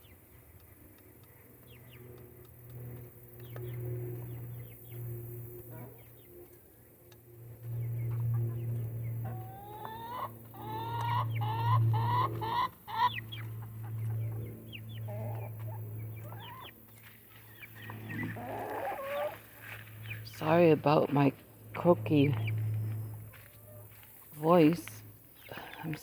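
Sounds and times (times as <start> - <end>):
steady low hum: 0.0 - 26.0
chickens clucking: 7.6 - 26.0
chicken chirps: 8.1 - 19.7.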